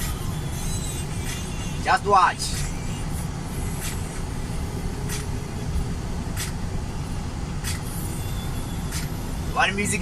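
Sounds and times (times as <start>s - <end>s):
truck engine and road rumble: 0.0s - 10.0s
short hissing ticks: 5.1s - 5.3s.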